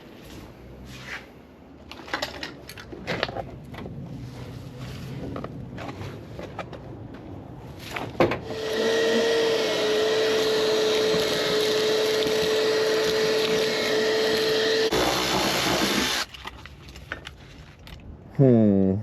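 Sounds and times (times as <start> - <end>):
shop vacuum running: 8.5 - 16.3.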